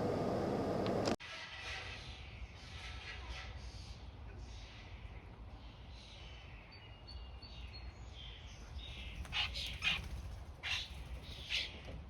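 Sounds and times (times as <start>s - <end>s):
harsh scratchy bird calls: 9.0s - 11.7s.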